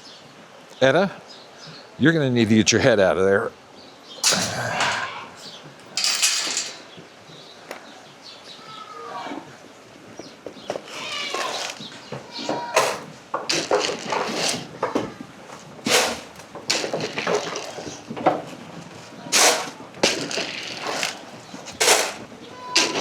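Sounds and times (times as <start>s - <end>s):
goats and sheep eating feed: 10.0s - 23.0s.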